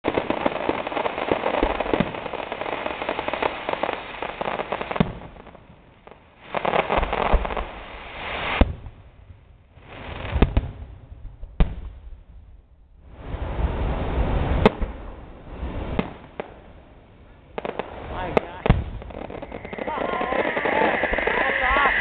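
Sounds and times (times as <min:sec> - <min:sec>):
fireworks crackling: 0:00.0 - 0:08.8, 0:17.4 - 0:22.0
fireworks bangs: 0:17.5 - 0:22.0.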